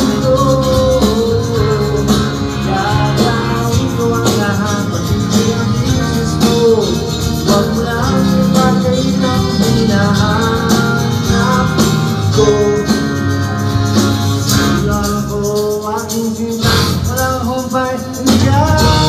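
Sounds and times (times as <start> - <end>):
person singing: 0.0 - 13.6, 14.5 - 19.0
guitars: 0.0 - 19.0
rhythm section: 0.0 - 19.0.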